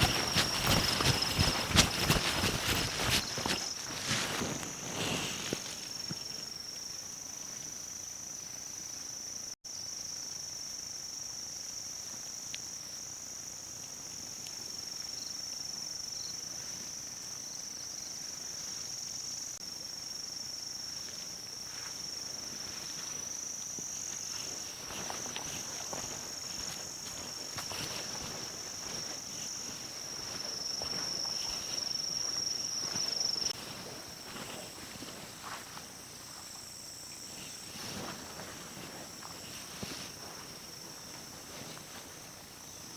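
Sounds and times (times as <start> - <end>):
rustling: 0.0 - 6.5, 37.3 - 42.3
insects buzzing: 0.0 - 42.9.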